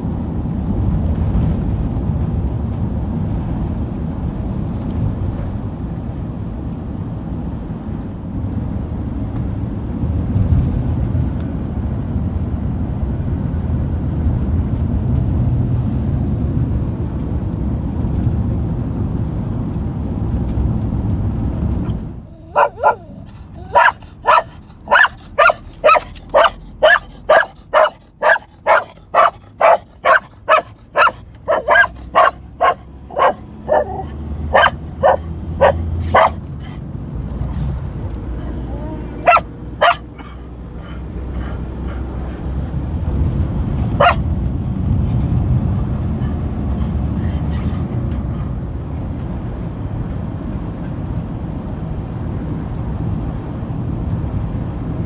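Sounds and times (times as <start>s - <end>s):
dog barking: 22.3s - 36.8s, 38.4s - 42.4s, 43.8s - 44.3s.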